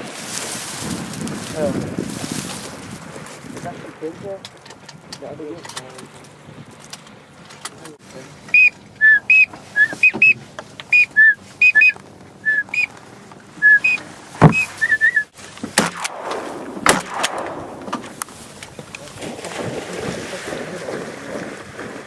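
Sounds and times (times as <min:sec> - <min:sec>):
duck whistle call peeps: 0:08.5 - 0:13.0, 0:13.6 - 0:15.3
thump: 0:14.4 - 0:14.8
sharp knocks: 0:14.4 - 0:14.9.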